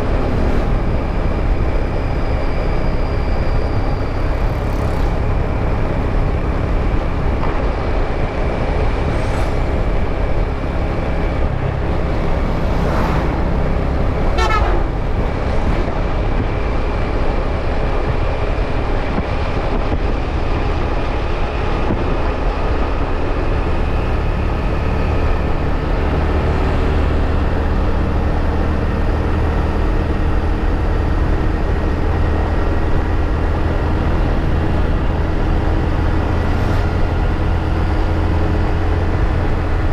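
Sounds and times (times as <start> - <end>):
motorbike engine: 0.0 - 18.6
wind rumble on microphone: 0.0 - 39.9
horn toots: 14.1 - 15.9.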